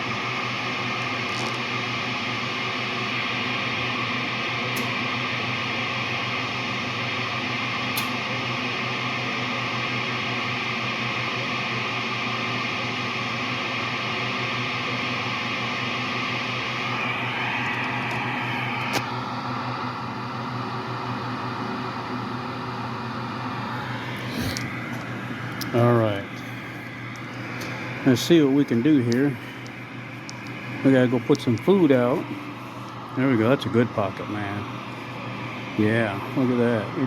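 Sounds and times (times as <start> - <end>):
mechanical hum: 0.0 - 37.0.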